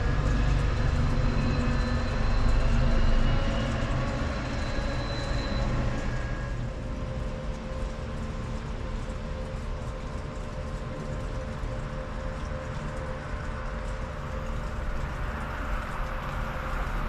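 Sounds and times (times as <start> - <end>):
train low rumble: 0.0 - 8.8.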